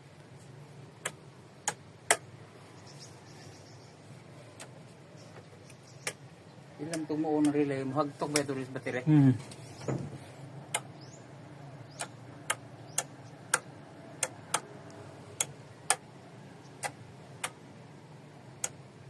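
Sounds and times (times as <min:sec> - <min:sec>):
starter relay clicking: 0:01.0 - 0:02.3, 0:04.5 - 0:04.8, 0:05.4 - 0:08.6, 0:10.7 - 0:11.1, 0:11.9 - 0:14.7, 0:15.3 - 0:16.1, 0:16.7 - 0:17.7, 0:18.5 - 0:18.9.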